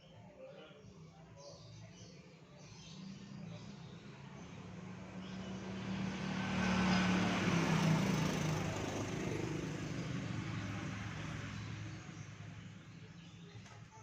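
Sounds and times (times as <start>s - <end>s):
vehicle engine passing by: 2.9s - 13.1s.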